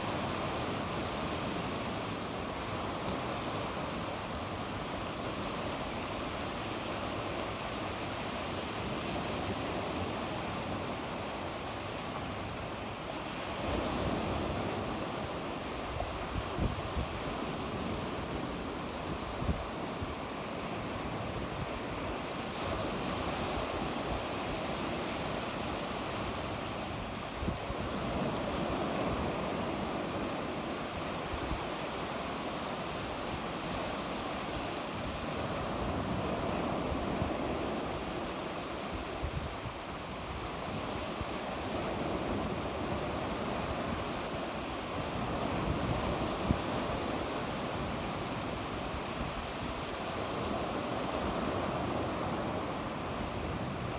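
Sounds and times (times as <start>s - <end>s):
sea waves breaking on shore: 0.0s - 53.9s
wind rumbling on microphone: 13.3s - 32.2s.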